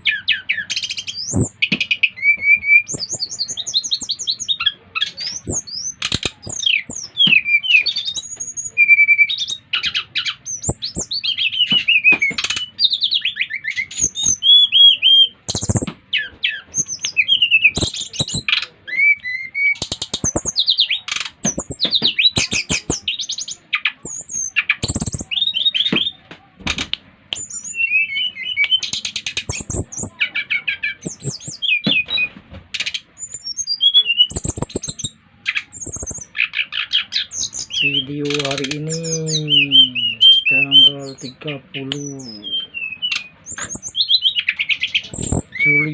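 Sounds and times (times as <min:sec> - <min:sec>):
bird singing whistles and trills: 0:00.0 - 0:26.2, 0:27.3 - 0:45.9
sharp clicks: 0:15.5 - 0:16.0, 0:19.2 - 0:23.1, 0:24.0 - 0:25.3, 0:26.7 - 0:30.1, 0:31.0 - 0:31.6, 0:34.3 - 0:36.3.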